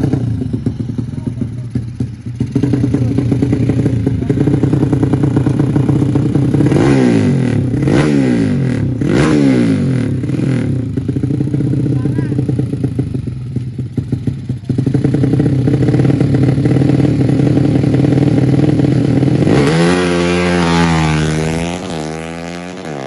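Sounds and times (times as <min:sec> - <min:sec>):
race motorcycle engines running: 0:00.0 - 0:23.0
motorcycle passing by: 0:15.2 - 0:23.0.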